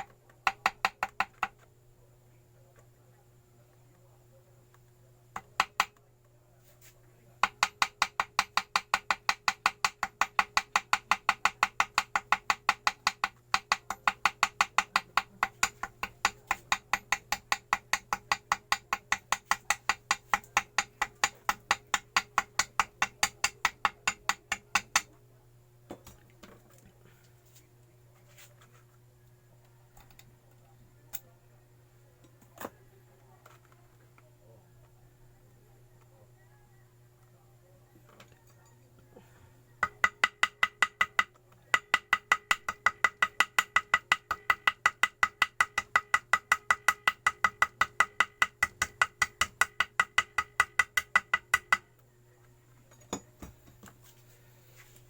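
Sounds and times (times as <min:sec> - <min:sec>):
small hammer tapping: 0:00.0 - 0:01.7, 0:05.4 - 0:06.1, 0:07.4 - 0:25.1, 0:39.8 - 0:51.9.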